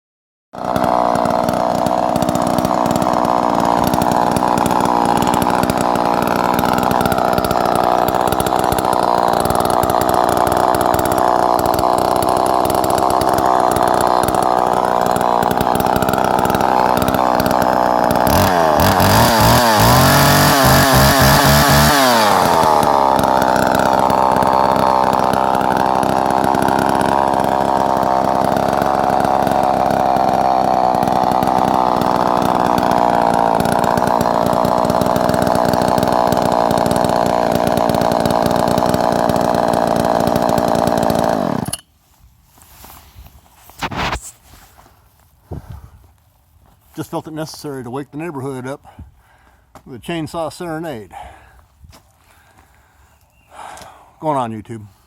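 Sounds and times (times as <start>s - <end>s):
chainsaw running: 0.6s - 44.3s.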